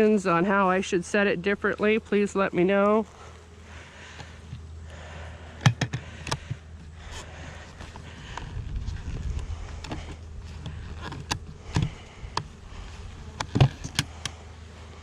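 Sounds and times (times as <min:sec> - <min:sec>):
bees buzzing: 0:00.0 - 0:15.0
sharp clicks and knocks: 0:05.6 - 0:06.9, 0:09.3 - 0:12.5, 0:13.4 - 0:14.4.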